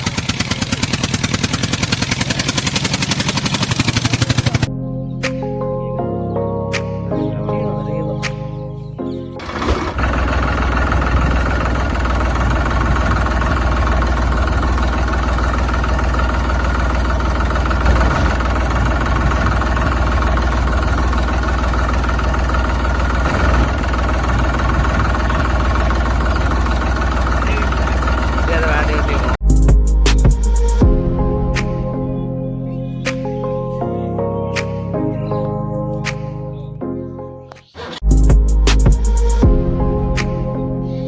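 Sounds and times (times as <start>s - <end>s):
engine idling: 0.0s - 4.7s, 9.4s - 29.4s
music: 4.7s - 9.4s, 29.4s - 41.0s.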